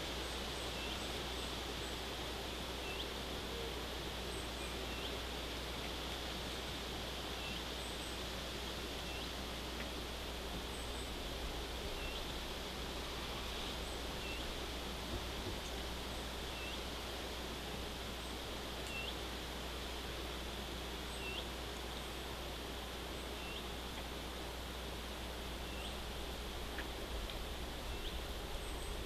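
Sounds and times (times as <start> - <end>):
outdoor hiss: 0.0 - 29.0.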